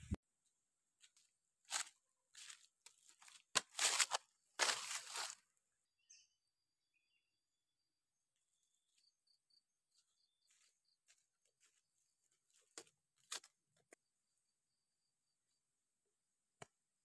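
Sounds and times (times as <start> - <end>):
faint insect or bird chirps: 5.7 - 12.1, 14.0 - 16.0.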